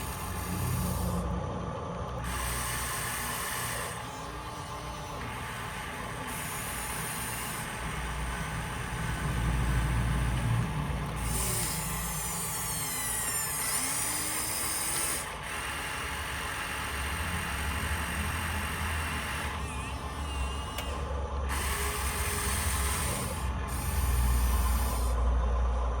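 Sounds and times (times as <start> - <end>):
toy electric motors whirring: 0.0 - 1.4, 2.0 - 25.4.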